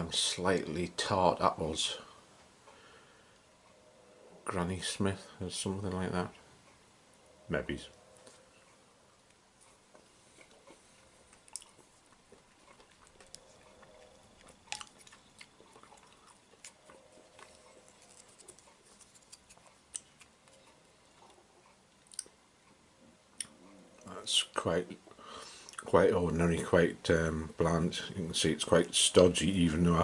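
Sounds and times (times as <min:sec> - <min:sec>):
chewing soggy cereal: 0:09.6 - 0:22.3.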